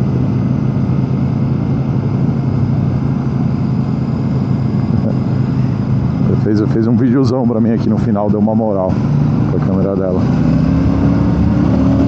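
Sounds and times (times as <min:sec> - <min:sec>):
motorcycle engine cruising: 0:04.1 - 0:12.0.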